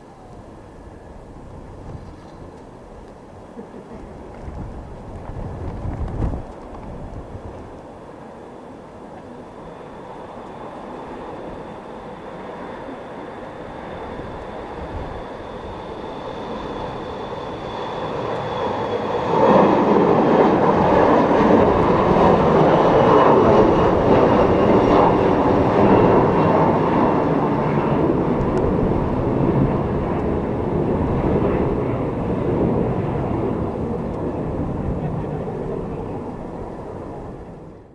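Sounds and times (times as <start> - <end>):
aircraft engine passing: 0.0 - 37.9
faint high whine: 7.7 - 37.9.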